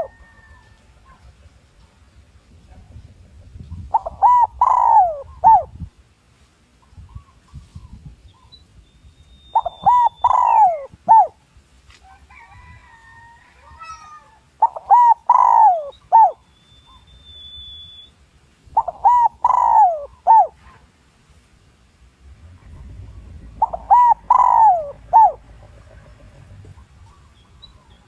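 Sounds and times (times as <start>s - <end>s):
dove cooing: 0.0s - 0.4s, 3.8s - 5.8s, 9.5s - 11.4s, 13.8s - 17.0s, 18.8s - 20.7s, 22.4s - 27.3s
bird whistles and chirps: 8.3s - 11.3s, 13.9s - 18.2s, 18.8s - 20.5s, 23.6s - 25.4s.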